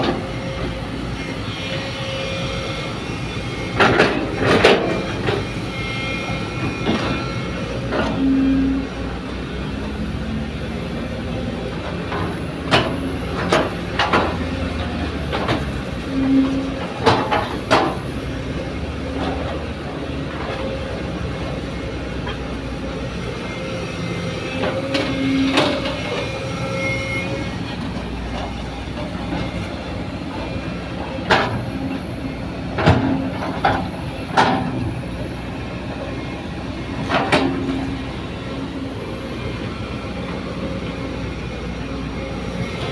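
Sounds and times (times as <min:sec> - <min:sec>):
excavator diesel engine running: 0:00.0 - 0:42.9
clanks on steel truck bed: 0:03.7 - 0:05.5, 0:11.9 - 0:18.1, 0:32.7 - 0:35.3, 0:36.9 - 0:38.0.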